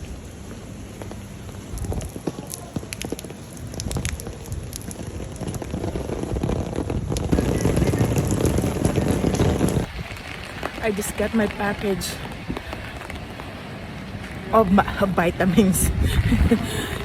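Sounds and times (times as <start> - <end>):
heavy rain: 0.0 - 17.0
low wind rumble: 0.0 - 17.0
raindrops ticking on microphone: 0.0 - 17.0.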